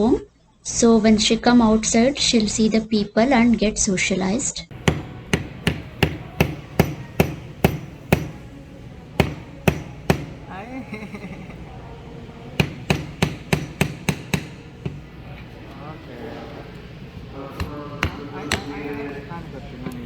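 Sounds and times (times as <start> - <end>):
hammer striking nails into wood: 4.7 - 10.6, 12.4 - 15.2, 17.6 - 18.7.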